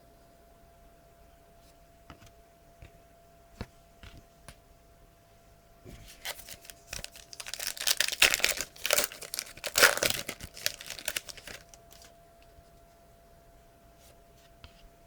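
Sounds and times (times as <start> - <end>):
plastic wrapper crinkling and tearing: 6.1 - 12.1.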